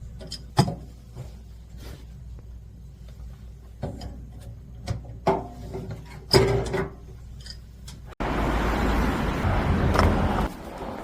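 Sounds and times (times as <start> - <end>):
street traffic noise: 7.9 - 11.0.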